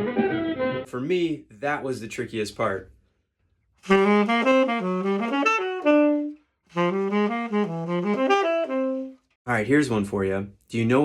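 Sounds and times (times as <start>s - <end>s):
saxophone playing fast bebop: 0.0s - 0.9s, 3.8s - 9.3s.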